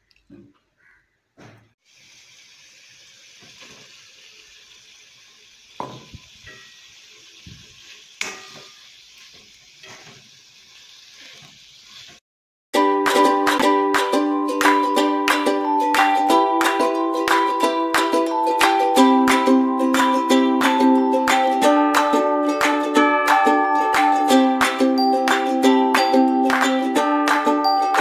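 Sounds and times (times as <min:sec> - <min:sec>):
food sizzling in a wok: 0:01.8 - 0:12.2
ukulele music: 0:12.8 - 0:28.0.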